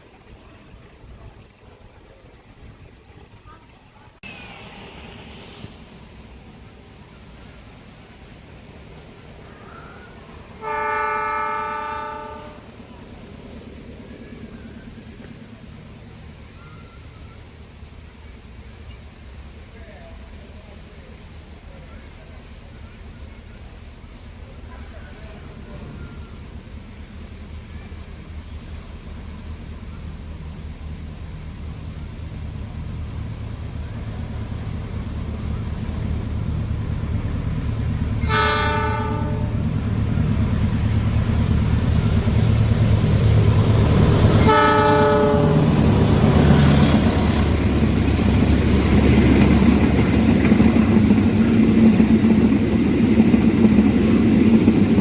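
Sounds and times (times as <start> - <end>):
diesel locomotive engine: 0.0 - 55.0
train horn blast: 10.6 - 12.7, 38.2 - 39.8, 44.1 - 45.9.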